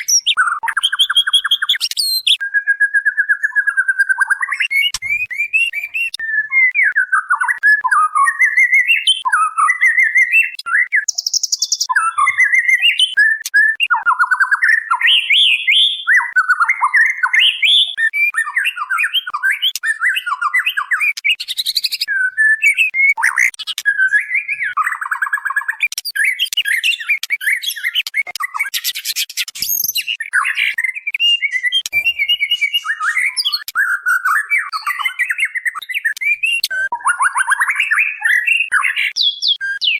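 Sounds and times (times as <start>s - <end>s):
bird whistling gliding phrases: 0.0s - 39.9s.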